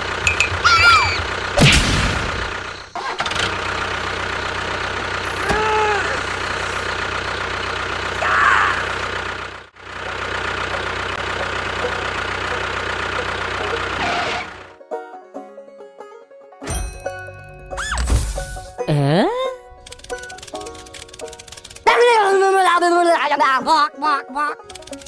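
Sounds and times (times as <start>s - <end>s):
engine running: 0.0s - 14.8s, 19.6s - 22.0s, 24.7s - 25.0s.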